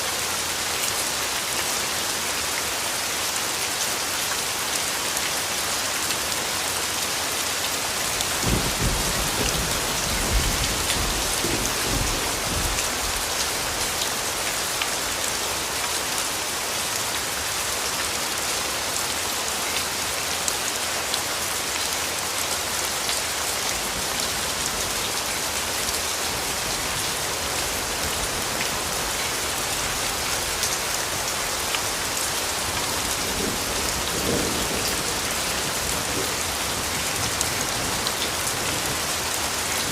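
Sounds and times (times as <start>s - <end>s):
rain pattering: 0.0s - 39.9s
thunder rumbling: 8.4s - 13.2s.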